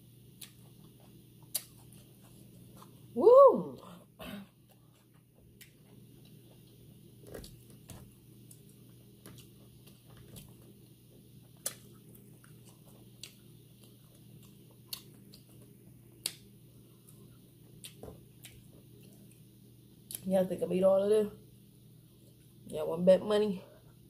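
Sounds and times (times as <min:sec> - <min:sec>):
person chewing: 0:00.3 - 0:03.1, 0:04.6 - 0:20.2.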